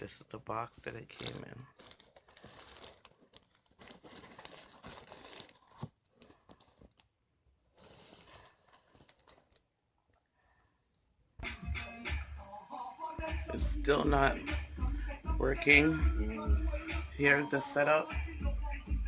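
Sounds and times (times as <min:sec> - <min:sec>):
cardboard box rustling and crinkling: 0:01.2 - 0:07.0, 0:07.7 - 0:09.6.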